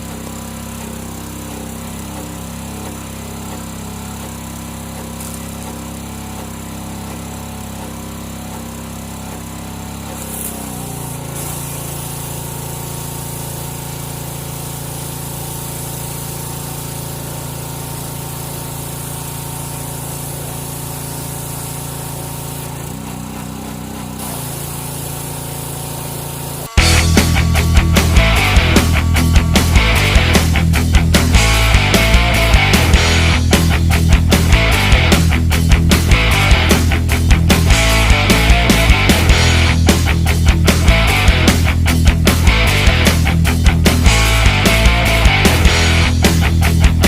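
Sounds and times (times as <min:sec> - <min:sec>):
pressure washer running: 0:00.0 - 0:47.0
music: 0:26.7 - 0:47.0.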